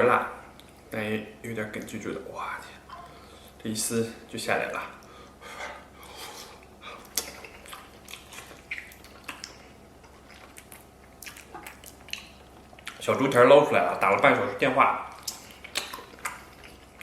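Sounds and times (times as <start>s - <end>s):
man chewing soft food: 4.9s - 13.1s, 15.1s - 17.0s
wet mouth sounds: 6.0s - 13.0s, 15.1s - 17.0s.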